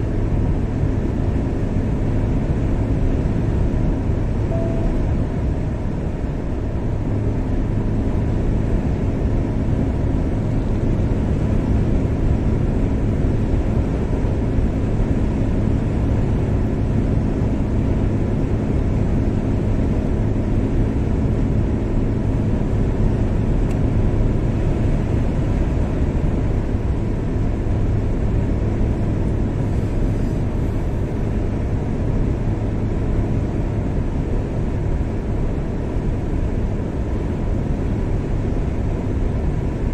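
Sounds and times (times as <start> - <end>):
car engine and tyre rumble: 0.0 - 39.9
faint steady hum: 4.4 - 7.5.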